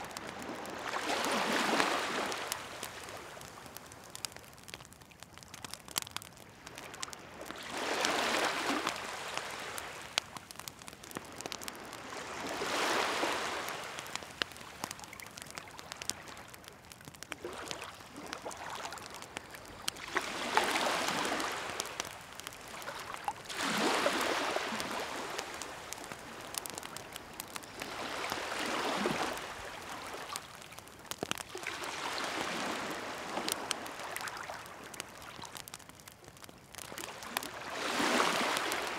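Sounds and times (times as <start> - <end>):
waves washing ashore: 0.0 - 3.6, 6.7 - 16.6, 19.9 - 30.4, 31.3 - 34.9, 36.8 - 38.9
wood fire crackling and popping: 0.0 - 38.9.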